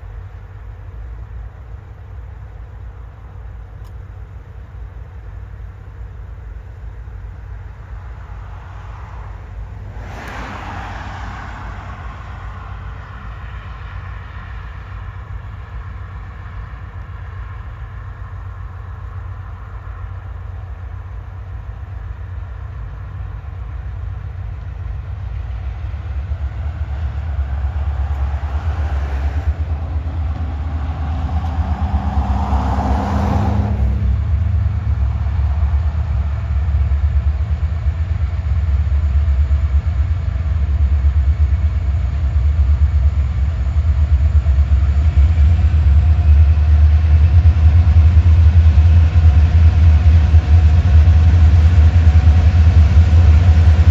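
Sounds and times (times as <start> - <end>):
locomotive engine rumble: 0.0 - 53.9.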